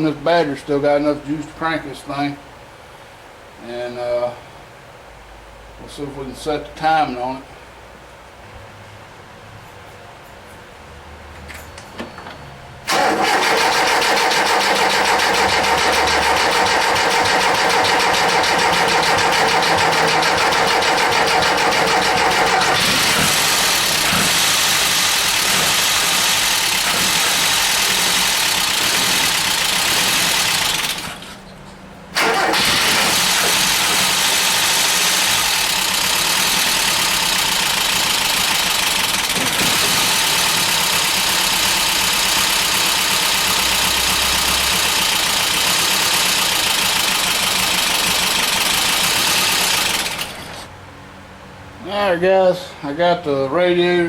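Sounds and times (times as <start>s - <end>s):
starter motor cranking engine: 12.8s - 31.4s, 32.1s - 50.7s
engine running rough: 12.8s - 51.0s.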